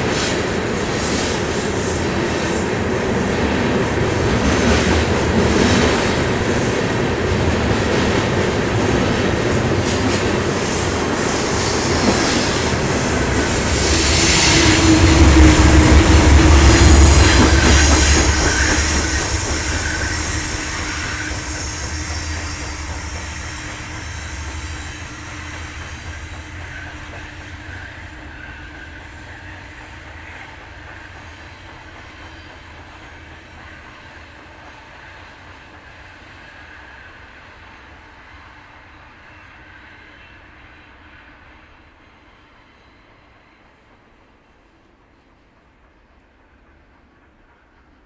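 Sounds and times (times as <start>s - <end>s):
high hiss: 0.0s - 29.4s
freight train wheels on rails: 0.0s - 48.0s.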